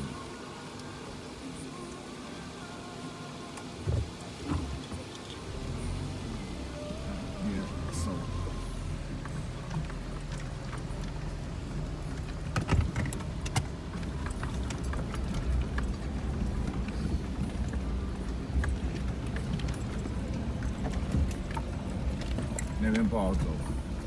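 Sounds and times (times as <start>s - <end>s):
vehicle engine running at low revs: 0.0s - 24.0s
vehicle knocks and rattles: 9.2s - 24.0s.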